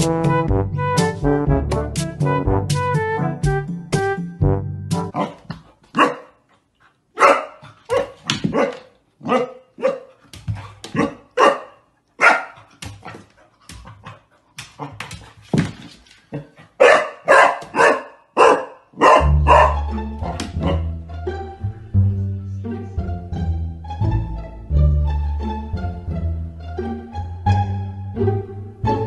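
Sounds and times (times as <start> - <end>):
puppy barking: 5.1 - 6.4, 7.2 - 10.2, 10.9 - 12.7, 16.8 - 20.9.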